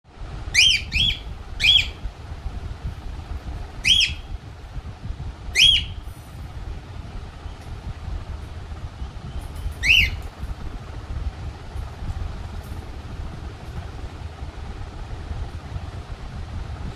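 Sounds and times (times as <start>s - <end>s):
low background rumble: 0.1s - 16.9s
parrot squawking: 0.5s - 2.1s, 3.8s - 4.3s, 5.6s - 6.1s, 9.8s - 10.3s.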